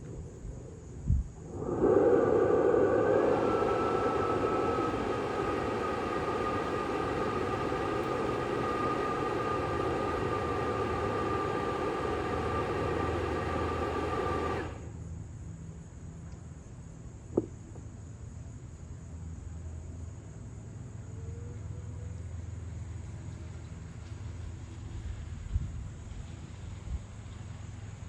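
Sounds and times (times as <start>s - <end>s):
leaf blower whining: 1.4s - 14.9s.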